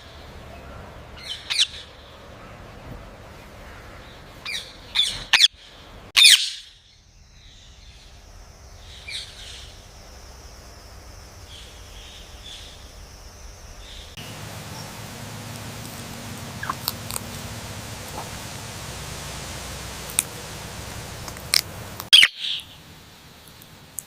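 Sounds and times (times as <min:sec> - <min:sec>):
faint bird chirps: 0:03.6 - 0:22.9
parrot squawking: 0:06.2 - 0:06.6, 0:14.6 - 0:22.8.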